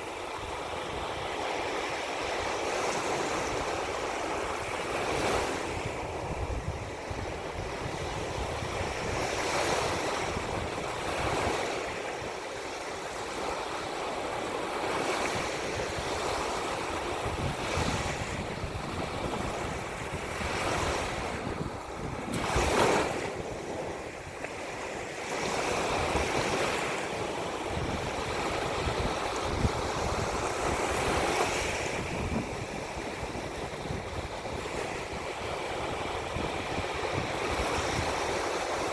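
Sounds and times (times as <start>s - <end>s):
wind buffeting microphone: 0.0s - 12.4s, 14.8s - 38.9s
ocean surf washing in: 14.2s - 38.9s.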